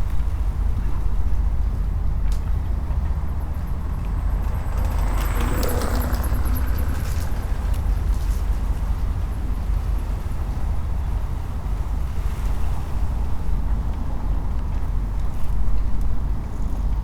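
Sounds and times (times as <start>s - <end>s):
distant boat engines rumbling: 0.1s - 15.4s
mooring ropes creaking: 3.2s - 9.4s.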